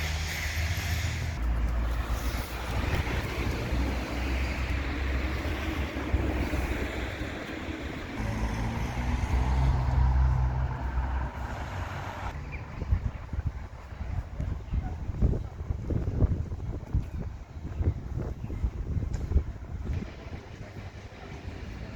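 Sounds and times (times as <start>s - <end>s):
motor vehicle engine running: 0.0s - 12.3s.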